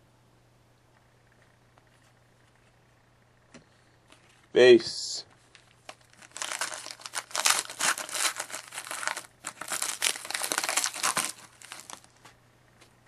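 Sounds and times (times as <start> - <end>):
card pack wrapper crinkling and tearing: 5.5 - 12.1.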